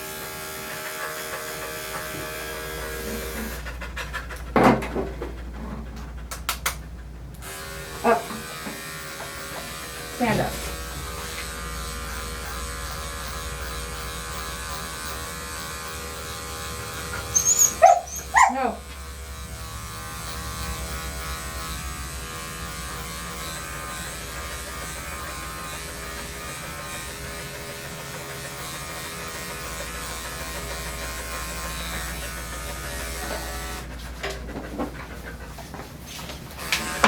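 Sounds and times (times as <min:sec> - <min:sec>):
electric clippers humming: 0:00.0 - 0:03.6, 0:07.4 - 0:34.4, 0:36.5 - 0:37.0
dog barking: 0:17.4 - 0:18.8.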